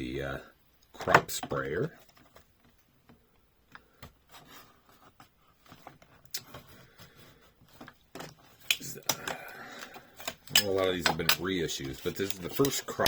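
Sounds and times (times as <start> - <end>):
plastic packaging clicks and scrapes: 3.9 - 13.0.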